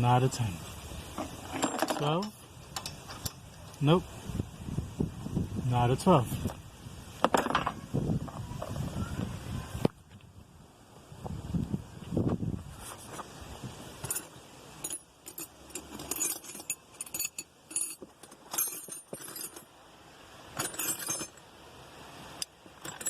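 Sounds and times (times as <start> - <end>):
metal sockets clinking: 1.2 - 3.8, 14.0 - 19.7, 20.6 - 21.4.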